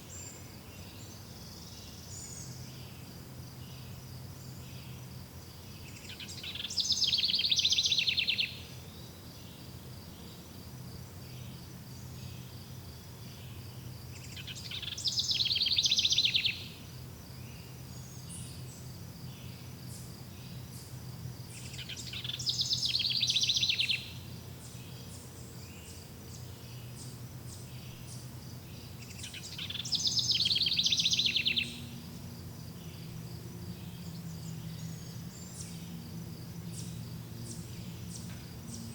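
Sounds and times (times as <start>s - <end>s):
insect trill: 0.1s - 38.9s
songbird trilling: 5.9s - 8.7s, 14.2s - 16.8s, 21.5s - 32.0s.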